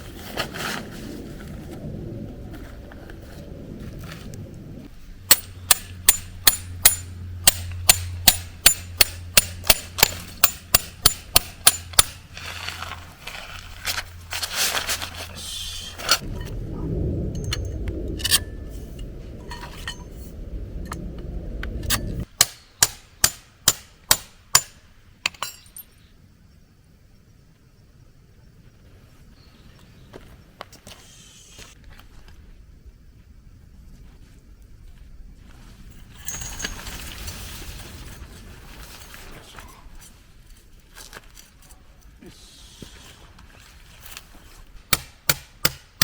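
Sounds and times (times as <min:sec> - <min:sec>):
hammer striking metal tent peg: 0:05.3 - 0:12.2, 0:22.4 - 0:25.7, 0:44.9 - 0:46.0
handling and rustling: 0:12.2 - 0:16.3, 0:35.5 - 0:42.2.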